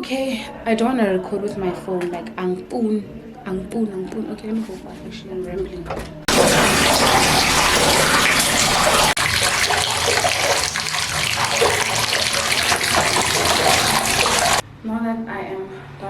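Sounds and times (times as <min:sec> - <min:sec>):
water running from a tap into a bath: 0:06.3 - 0:14.6.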